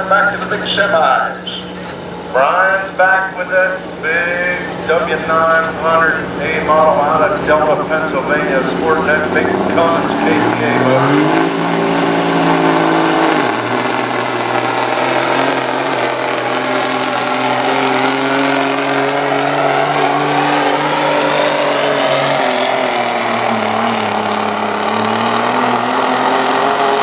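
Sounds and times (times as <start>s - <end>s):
diesel truck engine under load: 0.0s - 27.0s
high steady whistle: 11.5s - 16.4s.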